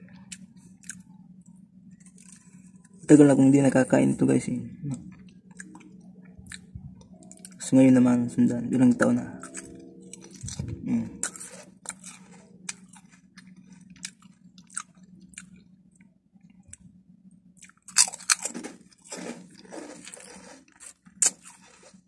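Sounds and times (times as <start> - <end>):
crunching potato snack: 2.0 - 3.6, 9.4 - 15.6, 17.6 - 22.0.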